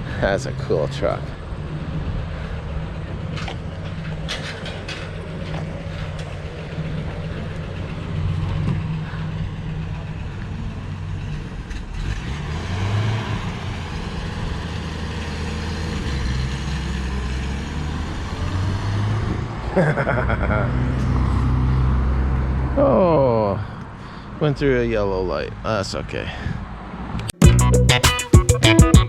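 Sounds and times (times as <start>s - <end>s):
pickup truck engine running: 1.4s - 11.9s.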